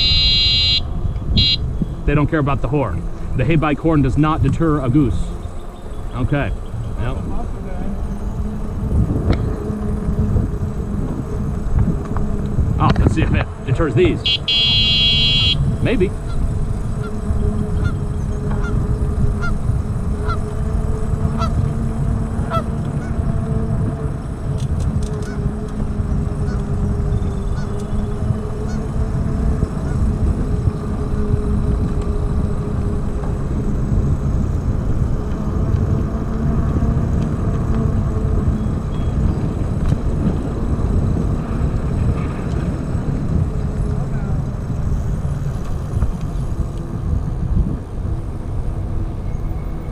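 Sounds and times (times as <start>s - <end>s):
geese honking: 0.0s - 8.8s, 13.5s - 23.6s, 25.2s - 29.0s
low steady hum: 0.0s - 49.9s
wind rumble on microphone: 0.0s - 49.9s.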